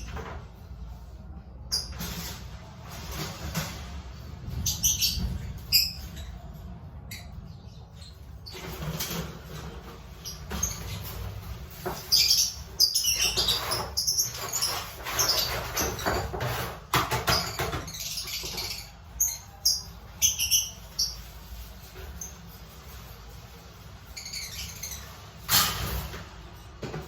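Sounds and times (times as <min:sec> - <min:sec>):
lovebirds chirping: 0:17.2 - 0:22.4.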